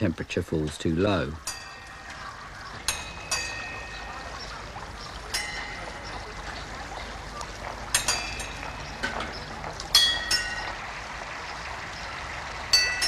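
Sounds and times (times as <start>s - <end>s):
water pouring and trickling: 0.0s - 13.0s
sharp metallic clinks: 1.4s - 6.5s, 7.9s - 10.8s.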